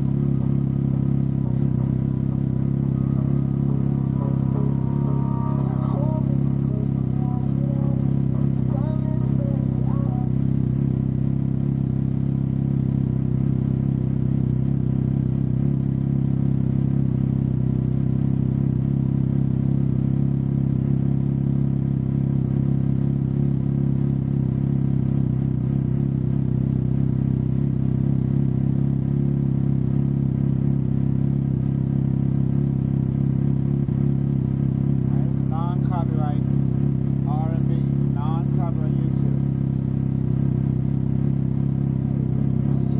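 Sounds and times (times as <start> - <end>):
engine running steadily: 0.0 - 42.9.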